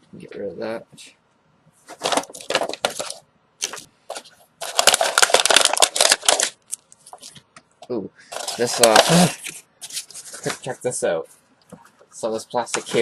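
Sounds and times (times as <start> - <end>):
plastic packaging crackling: 1.9 - 7.4, 8.3 - 10.7.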